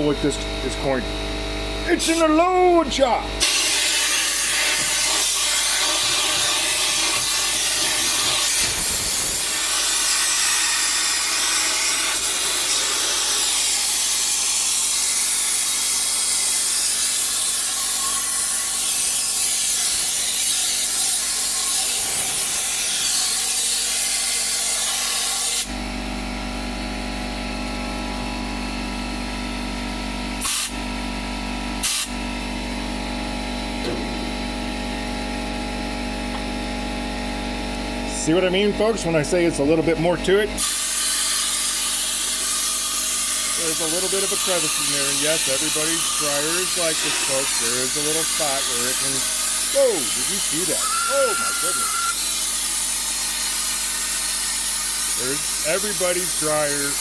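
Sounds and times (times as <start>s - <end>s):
steady hum: 0.0s - 13.0s, 25.7s - 40.6s
sharp knocks: 33.8s - 34.4s.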